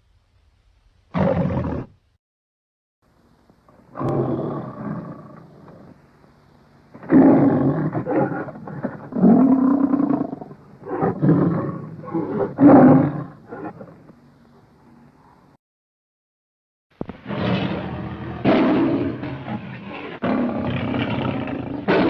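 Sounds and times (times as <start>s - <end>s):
animal roars: 1.1s - 2.0s, 3.8s - 6.0s, 7.0s - 14.1s, 17.1s - 22.0s.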